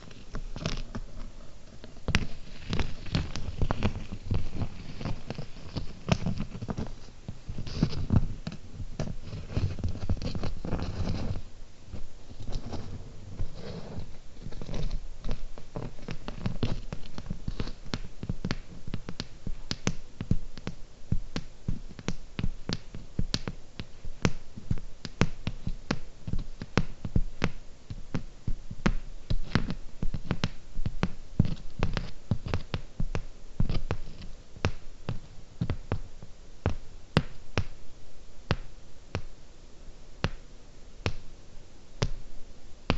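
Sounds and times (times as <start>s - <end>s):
rubbing and scratching: 0.0s - 20.0s.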